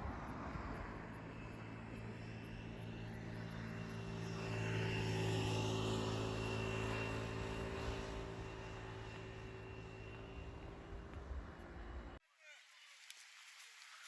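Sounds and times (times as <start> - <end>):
motor engine passing by: 0.4 - 12.2.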